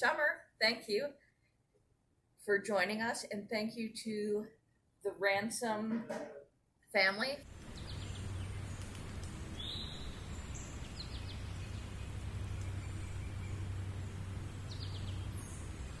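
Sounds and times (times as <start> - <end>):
low hum: 7.5 - 16.0.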